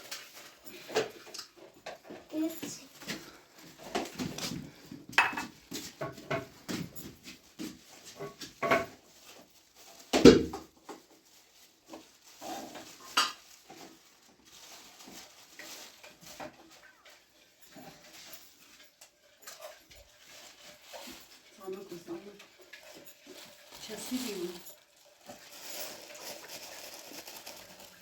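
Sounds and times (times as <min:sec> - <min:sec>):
dishes and pots clinking: 0:03.9 - 0:07.4, 0:08.0 - 0:09.1.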